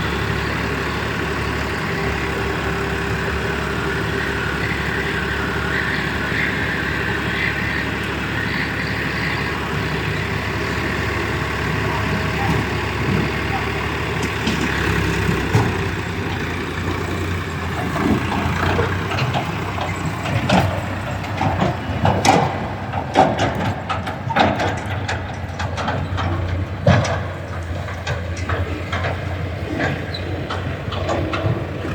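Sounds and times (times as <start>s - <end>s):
diesel tractor engine idling: 0.0s - 31.9s
knocks and clatter: 12.1s - 31.9s.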